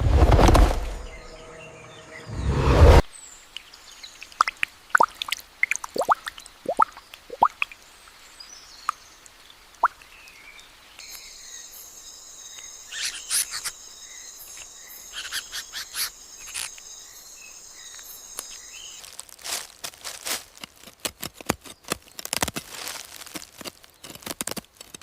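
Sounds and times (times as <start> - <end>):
crackling rustles: 0.0 - 1.3, 17.9 - 25.0
water drips: 3.4 - 11.2
high-pitched insect trills: 11.0 - 20.0.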